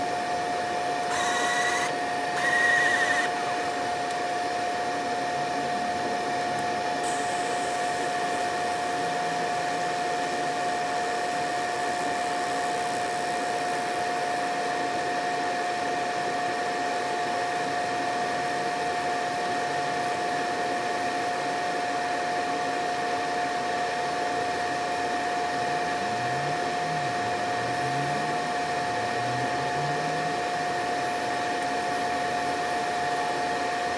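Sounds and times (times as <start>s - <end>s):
laser machine whirring: 0.0s - 14.4s, 24.4s - 33.5s.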